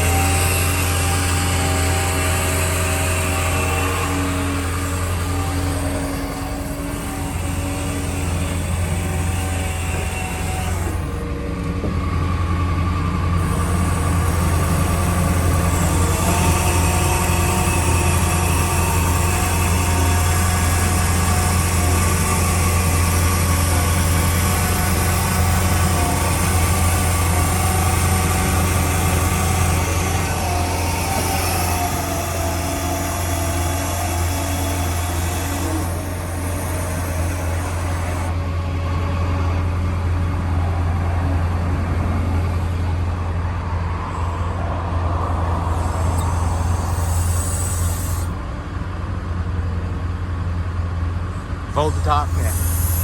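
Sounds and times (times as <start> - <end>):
turbo whine: 0.0 - 49.0, 51.3 - 53.0
diesel engine droning: 0.0 - 53.0
bright hiss: 45.4 - 48.4, 51.9 - 53.0.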